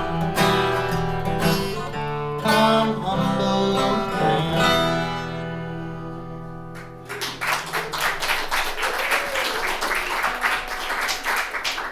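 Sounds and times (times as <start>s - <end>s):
audience applause: 7.0s - 11.9s.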